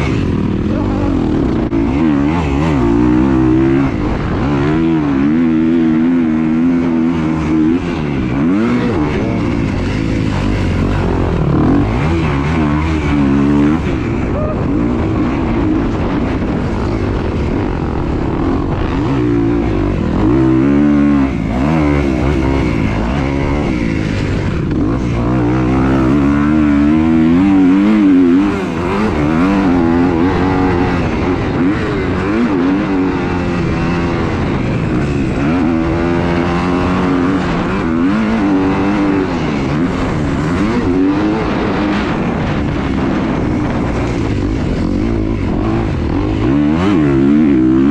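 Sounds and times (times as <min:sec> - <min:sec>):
engines revving: 0:00.0 - 0:47.9.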